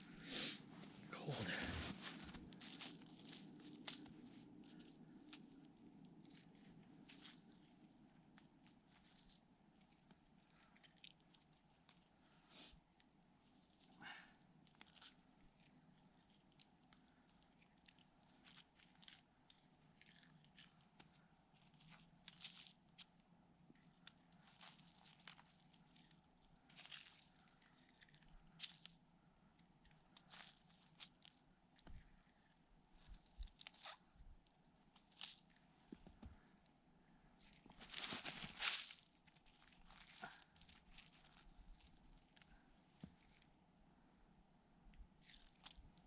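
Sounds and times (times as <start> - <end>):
rustling and crunching leaves: 1.2 - 9.4, 13.6 - 23.0, 24.1 - 29.0, 30.1 - 31.4, 33.0 - 34.0, 34.9 - 35.6, 37.4 - 42.5, 45.2 - 45.8.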